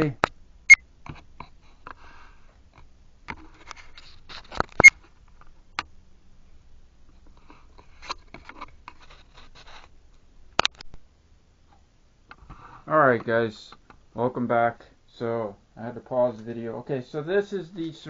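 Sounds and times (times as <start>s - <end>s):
faint rustling: 1.0s - 5.8s, 6.4s - 10.9s.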